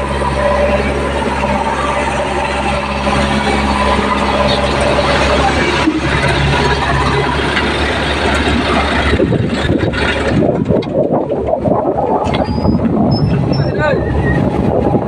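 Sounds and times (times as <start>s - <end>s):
heavy diesel engine running: 0.0s - 15.0s
rough uneven engine noise: 0.0s - 15.0s.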